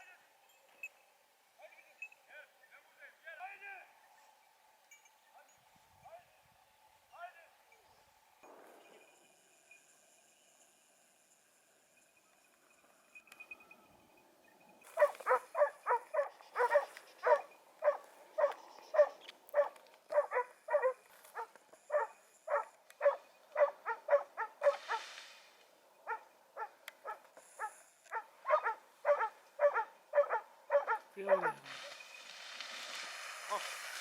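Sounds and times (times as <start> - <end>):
dog barking: 15.0 - 25.0, 26.1 - 31.7.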